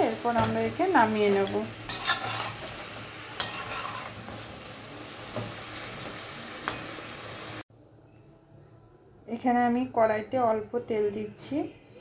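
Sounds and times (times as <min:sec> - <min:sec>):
chicken sizzling in oil: 0:00.0 - 0:07.6.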